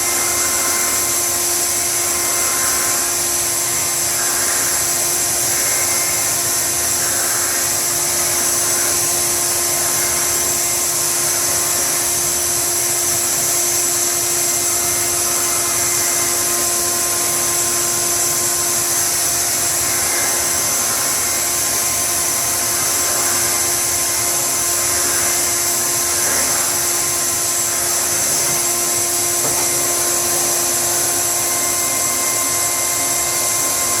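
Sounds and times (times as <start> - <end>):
electric blower motor whine: 0.0 - 34.0.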